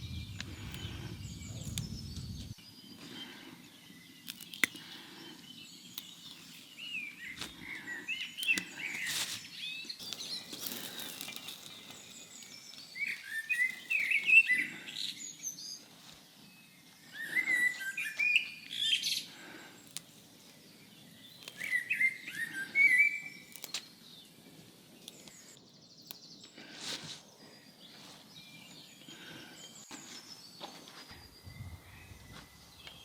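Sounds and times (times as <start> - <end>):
songbird quick high chirps: 0.0 - 2.7, 31.0 - 33.0.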